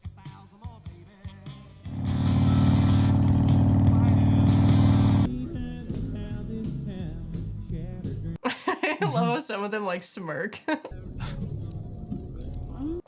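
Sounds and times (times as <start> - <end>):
motorcycle engine running: 1.9 - 5.3
rock music: 1.9 - 5.3.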